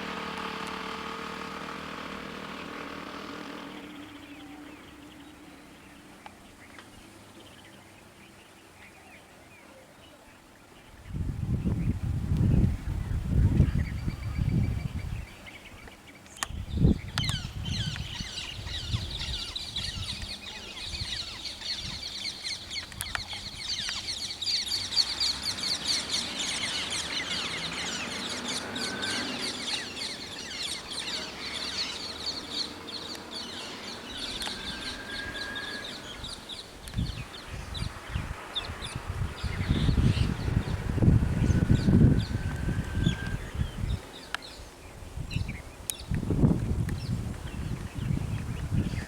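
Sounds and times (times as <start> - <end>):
birds chirping: 0.0 - 49.0
whistled bird notes: 16.4 - 44.7.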